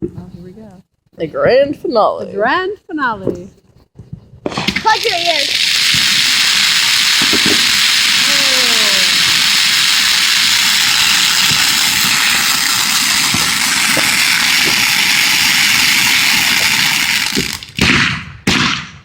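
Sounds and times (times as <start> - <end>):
fireworks crackling: 4.4 - 18.6
falling firework whistle: 5.5 - 17.7.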